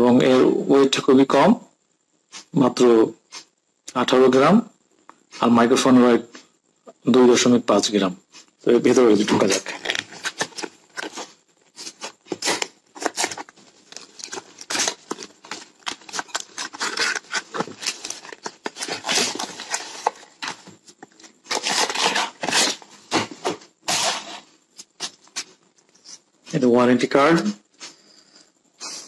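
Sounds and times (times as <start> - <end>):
paper rustling and crinkling: 9.2 - 26.2
cardboard box being opened: 12.3 - 20.8.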